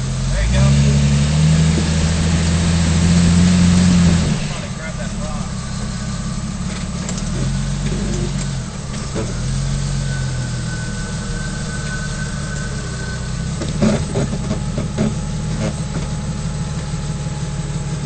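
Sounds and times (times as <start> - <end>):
off-road engine running low: 0.0 - 18.0.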